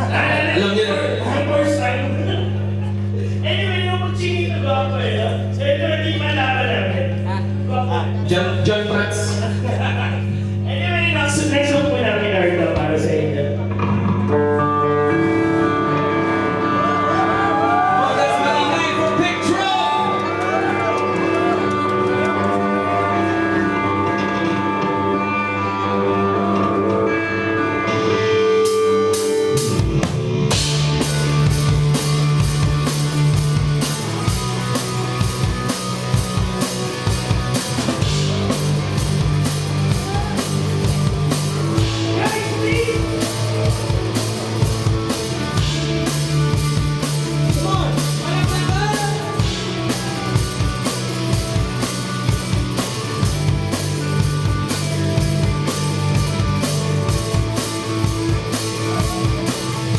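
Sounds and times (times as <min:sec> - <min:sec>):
live rock band: 0:11.3 - 0:59.9
drum kit beat: 0:12.8 - 0:59.9.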